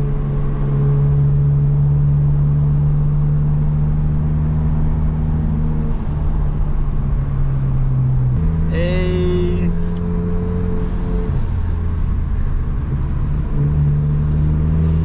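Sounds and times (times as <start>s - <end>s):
car engine while driving: 0.0s - 15.0s.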